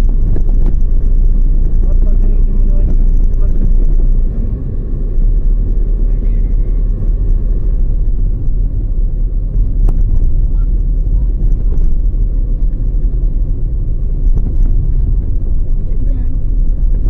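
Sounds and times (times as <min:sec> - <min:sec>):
car interior road and wind noise: 0:00.0 - 0:17.0.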